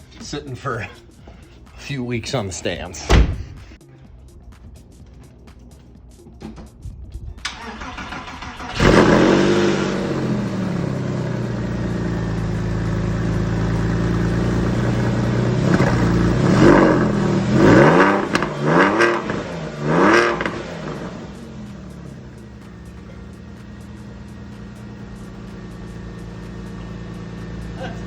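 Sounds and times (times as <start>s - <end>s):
engine starter cranking: 7.4s - 9.7s
car engine idling and revving: 7.4s - 28.0s.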